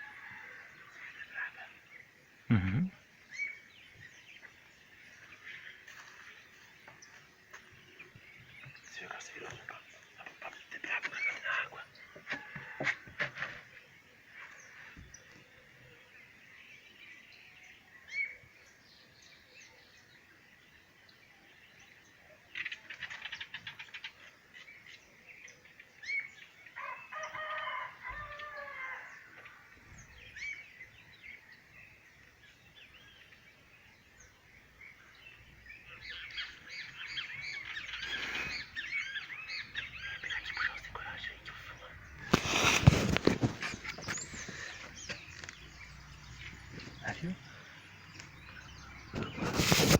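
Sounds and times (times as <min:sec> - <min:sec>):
birds chirping and calling: 0:00.3 - 0:20.0, 0:21.8 - 0:49.9.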